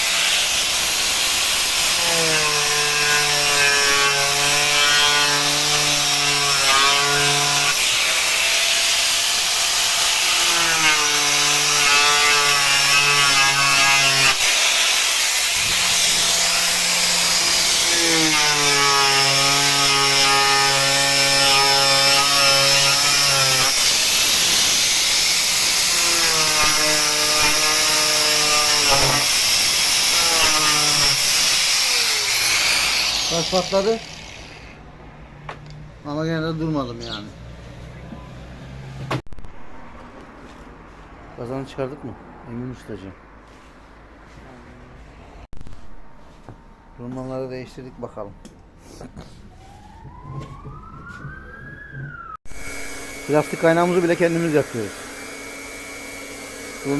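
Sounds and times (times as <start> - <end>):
angle grinder cutting plastic: 0.0 - 34.8, 52.5 - 56.9.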